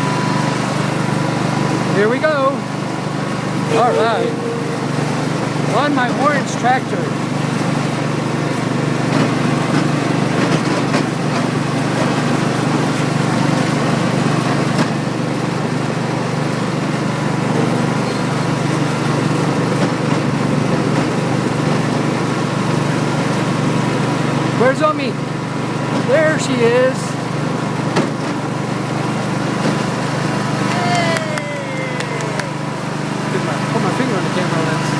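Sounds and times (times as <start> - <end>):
small tractor engine running: 0.0 - 34.9.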